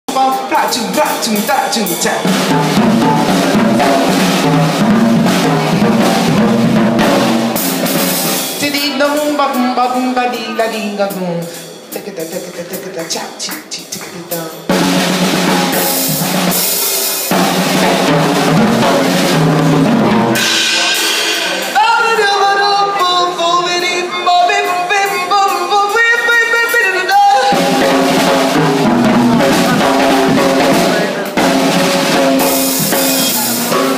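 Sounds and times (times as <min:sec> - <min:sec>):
steady bass line: 0:00.1 - 0:08.7, 0:14.6 - 0:22.2, 0:27.4 - 0:33.9
drum kit beat: 0:00.1 - 0:33.9
live band music: 0:00.1 - 0:33.9.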